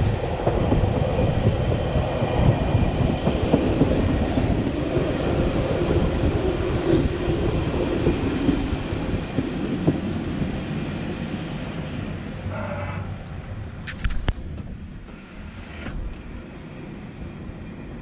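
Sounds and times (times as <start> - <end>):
train wheels rumbling on rails: 0.0 - 18.0
faint tonal whine: 11.4 - 13.9.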